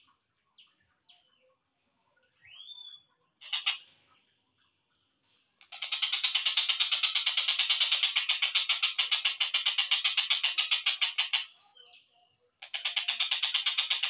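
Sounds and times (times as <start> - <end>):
kingfisher calling: 3.4 - 3.8.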